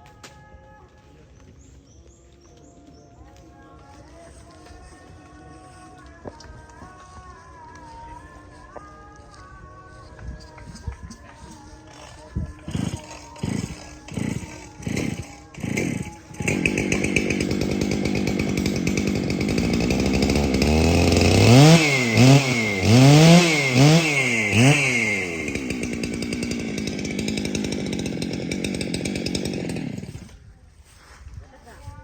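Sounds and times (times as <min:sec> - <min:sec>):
chainsaw engine revving: 0:11.5 - 0:30.4.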